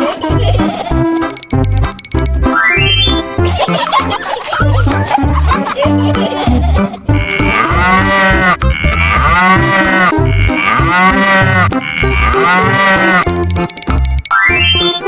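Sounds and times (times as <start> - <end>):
children's music with bass beat: 0.0 - 15.0
cow mooing: 7.1 - 13.3.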